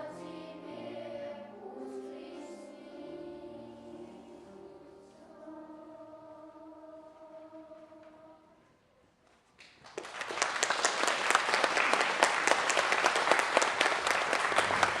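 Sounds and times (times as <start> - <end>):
choir holding chord: 0.0 - 8.6
audience applauding: 9.6 - 15.0.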